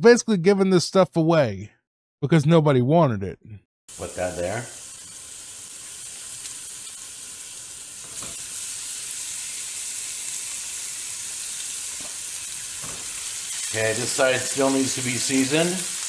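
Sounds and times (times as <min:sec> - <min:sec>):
patties sizzling in a frying pan: 0:03.9 - 0:16.0.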